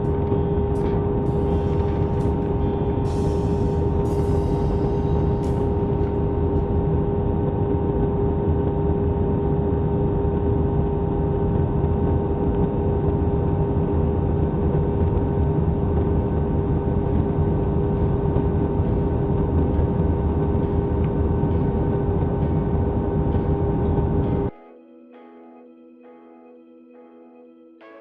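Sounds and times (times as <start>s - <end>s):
constant cabin hum: 0.0s - 10.9s.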